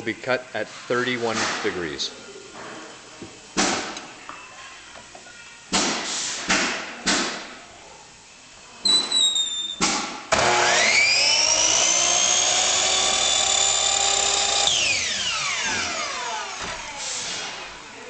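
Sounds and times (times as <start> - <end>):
miter saw motor whining: 10.3 - 17.6.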